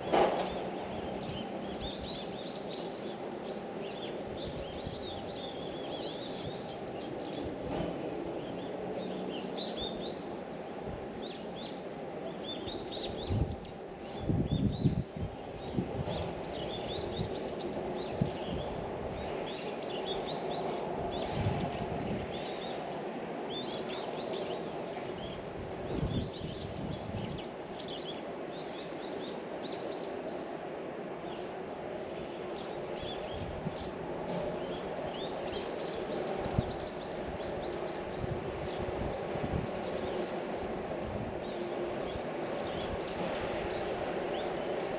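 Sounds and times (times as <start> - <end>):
low outdoor background hum: 0.0 - 44.9
small birds chirping: 0.5 - 22.9, 32.2 - 44.9.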